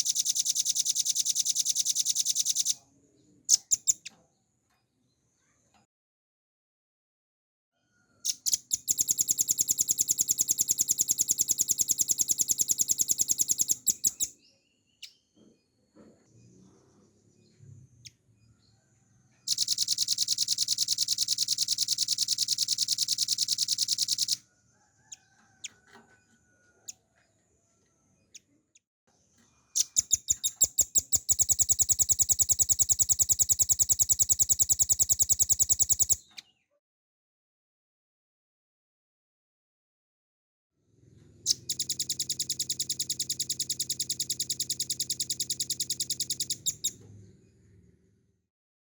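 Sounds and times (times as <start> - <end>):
bird rattling trills: 0.0 - 2.8, 8.3 - 14.3, 19.5 - 24.4, 29.8 - 36.2.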